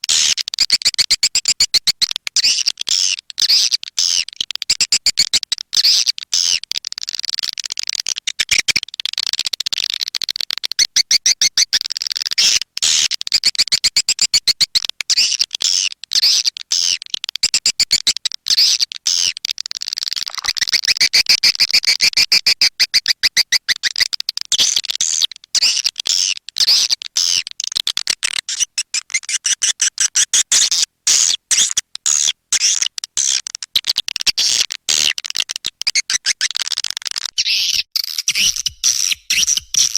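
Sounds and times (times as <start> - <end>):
swiftlet twittering chirps: 37.4 - 39.9.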